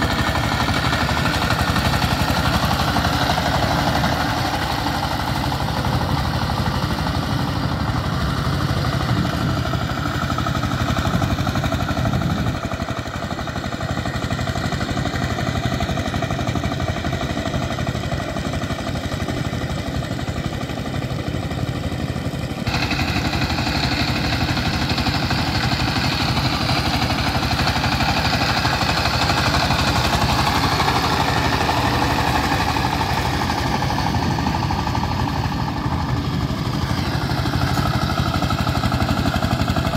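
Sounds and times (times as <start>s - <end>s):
machine working through muddy water: 0.0s - 39.9s
power tiller engine running: 0.0s - 39.9s.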